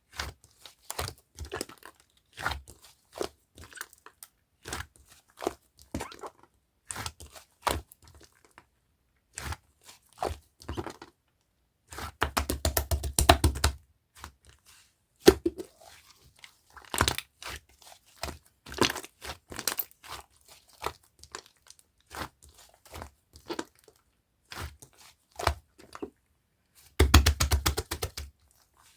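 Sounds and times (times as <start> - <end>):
fast sticky clicking: 27.0 - 28.3.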